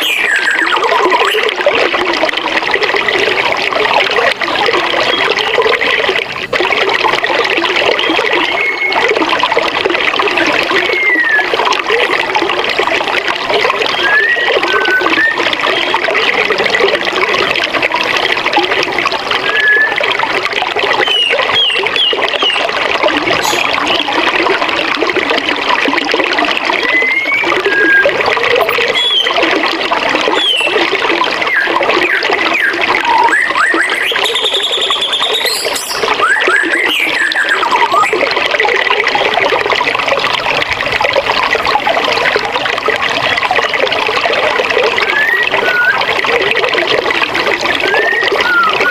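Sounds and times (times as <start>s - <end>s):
birds chirping: 31.5s - 38.1s.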